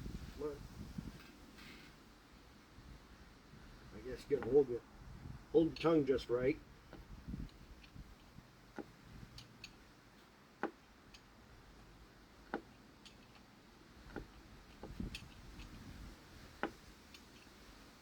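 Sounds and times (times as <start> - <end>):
hand tool clicks and knocks: 4.3 - 4.6, 10.6 - 11.3, 12.4 - 17.7.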